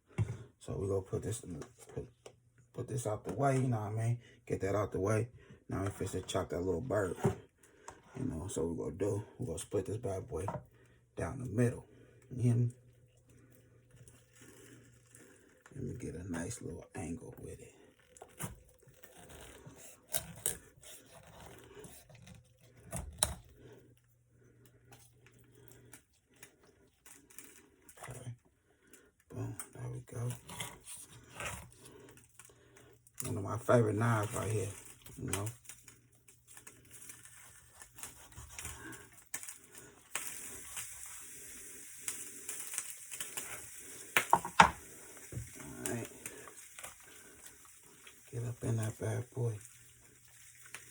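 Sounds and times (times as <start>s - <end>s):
knife scraping and tearing: 18.0s - 23.4s, 30.3s - 32.3s, 36.5s - 41.0s
steady hiss: 40.1s - 50.9s.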